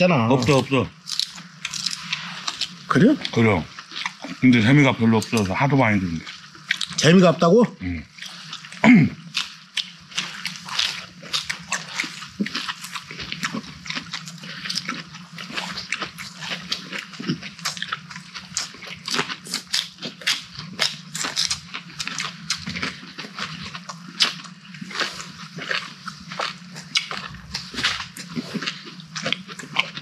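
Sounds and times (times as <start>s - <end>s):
steady low hum: 0.0s - 30.0s
wet chewing and crunching: 0.2s - 30.0s.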